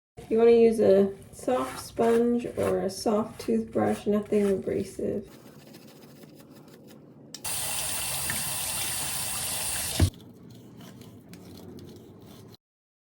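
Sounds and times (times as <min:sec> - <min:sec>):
tap running water: 0:07.4 - 0:10.1.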